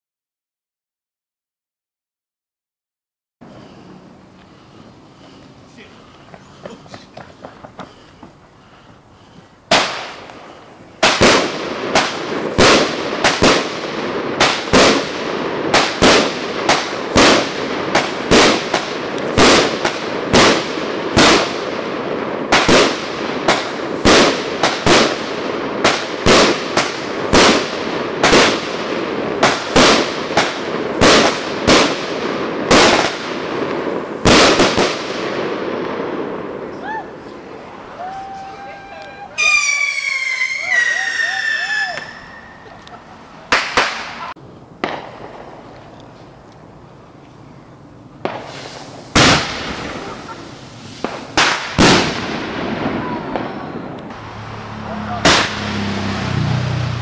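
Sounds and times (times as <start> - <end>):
fireworks crackle: 3.4 - 8.5, 9.4 - 56.0
fireworks bangs: 9.7 - 45.8, 48.2 - 57.0.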